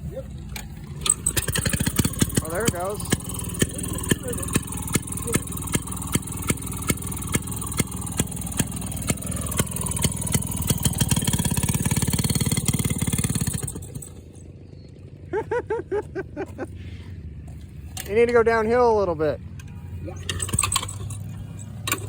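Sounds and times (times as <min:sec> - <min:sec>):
voices: 0:00.0 - 0:08.7, 0:17.4 - 0:22.0
minibike engine chugging: 0:00.0 - 0:22.0.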